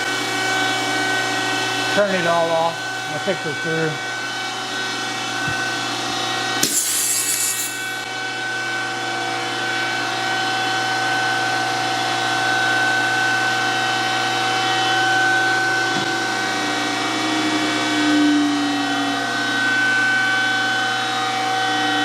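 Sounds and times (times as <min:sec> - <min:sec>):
surface grinder humming: 0:04.5 - 0:08.3.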